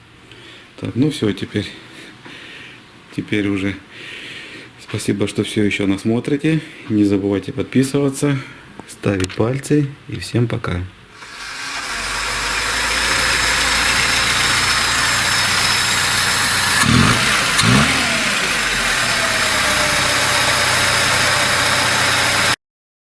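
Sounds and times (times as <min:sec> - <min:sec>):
petrol engine running: 0:11.2 - 0:22.6.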